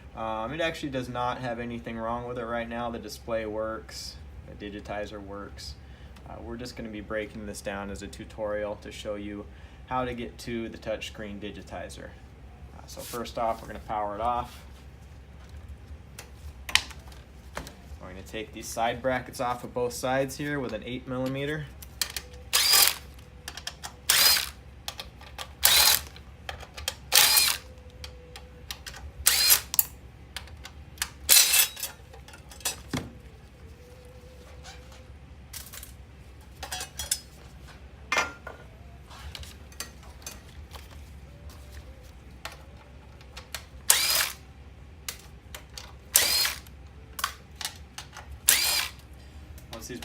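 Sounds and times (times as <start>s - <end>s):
power driver spinning: 22.0s - 26.2s, 26.8s - 29.9s, 31.0s - 32.2s, 43.2s - 44.4s, 46.1s - 46.7s, 48.4s - 49.0s.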